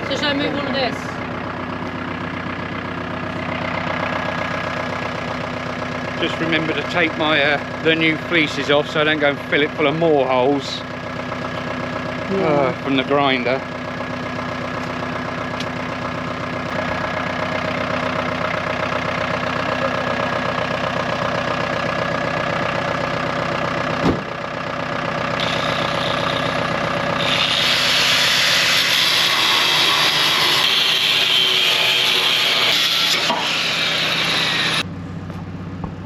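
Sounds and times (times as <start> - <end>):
angle grinder running: 0.0 - 24.0, 24.7 - 34.9
grinder cutting steel: 25.4 - 34.8.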